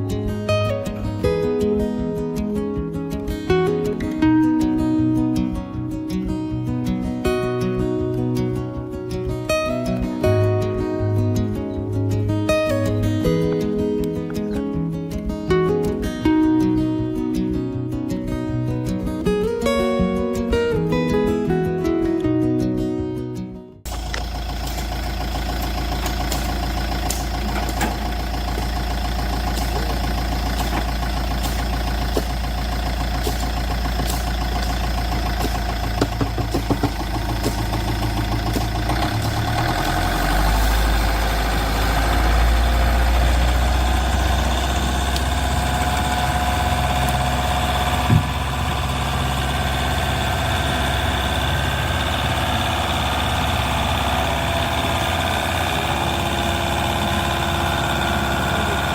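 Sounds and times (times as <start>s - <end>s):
small engine humming: 23.9s - 58.9s.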